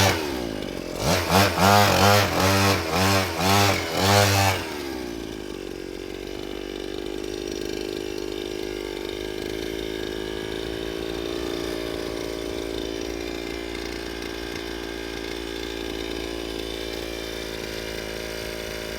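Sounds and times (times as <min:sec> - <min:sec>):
small engine running: 0:00.0 - 0:18.9.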